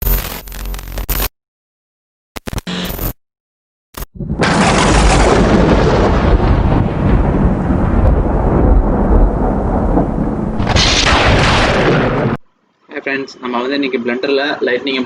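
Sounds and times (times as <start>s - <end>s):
sharp crack of thunder: 4.2s - 12.4s
thunder clap rumbling: 4.2s - 12.4s.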